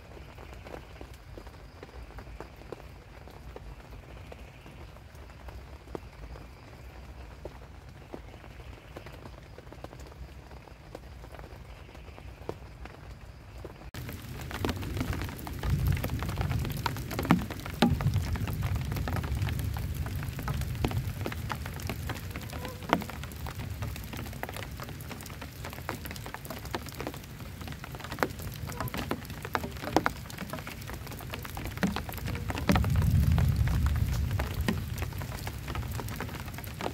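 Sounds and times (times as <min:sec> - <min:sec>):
heavy rain pelting a shelter: 0:00.0 - 0:36.9
low rumble of thunder: 0:14.0 - 0:36.9.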